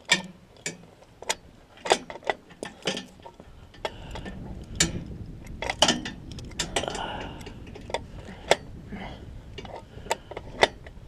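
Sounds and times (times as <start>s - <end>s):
metallic clicks of rigging hardware: 0.0s - 8.6s, 9.5s - 11.0s
low rumble: 3.1s - 11.0s.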